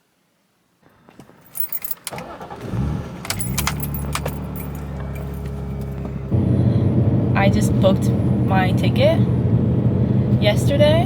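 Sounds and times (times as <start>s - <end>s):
car engine starting and idling: 0.8s - 11.0s
keys jangling: 1.4s - 6.0s.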